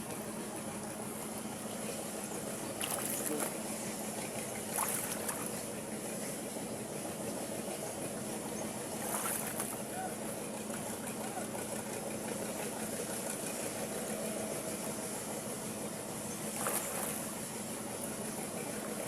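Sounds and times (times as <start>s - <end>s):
steady low hum: 0.0s - 19.0s
water sloshing and lapping: 0.9s - 6.1s, 8.7s - 11.2s, 16.4s - 19.0s
water splashes: 2.7s - 3.6s, 4.6s - 5.6s, 8.9s - 10.0s, 16.5s - 17.4s.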